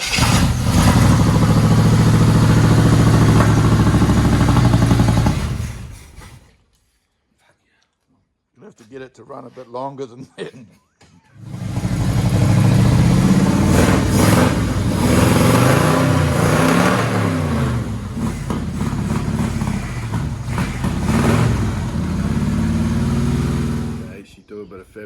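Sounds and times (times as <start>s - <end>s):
car engine revving: 0.0s - 6.2s, 11.4s - 24.2s.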